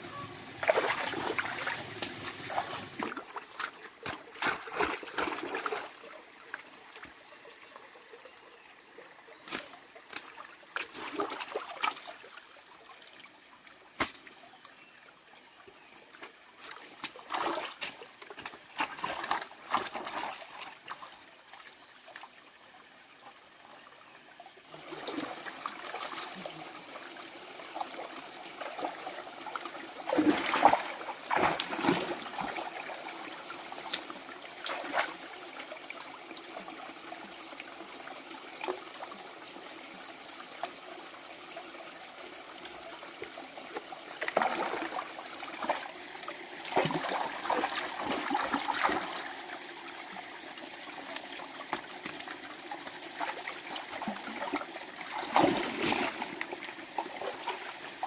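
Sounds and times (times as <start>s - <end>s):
water splashing: 0.1s - 6.5s, 16.7s - 21.1s, 28.0s - 33.1s, 33.8s - 35.2s, 43.7s - 49.4s, 51.2s - 58.0s
water trickling: 16.2s - 58.0s.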